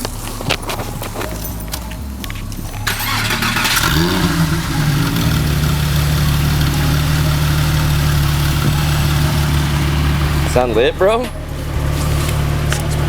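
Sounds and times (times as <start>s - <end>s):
car engine starting and idling: 0.0s - 13.0s.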